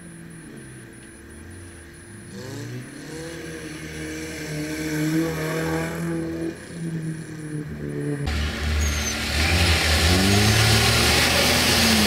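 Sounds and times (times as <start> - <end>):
car engine revving hard: 2.2 - 6.8, 8.0 - 12.0.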